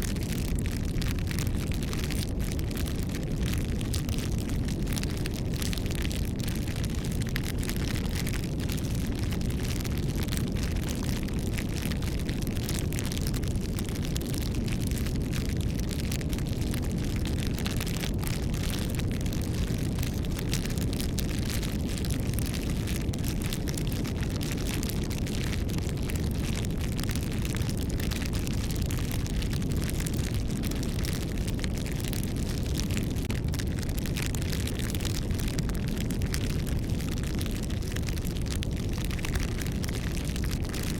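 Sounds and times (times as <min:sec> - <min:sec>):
bonfire crackling: 0:00.0 - 0:40.9.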